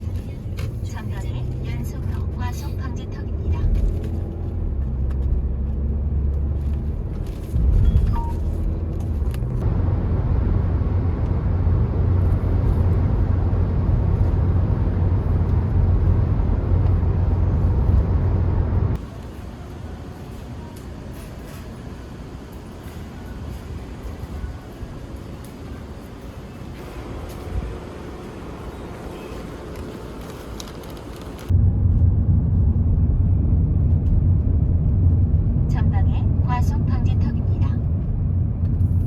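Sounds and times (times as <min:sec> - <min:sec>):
car road and engine rumble: 0:00.0 - 0:39.0.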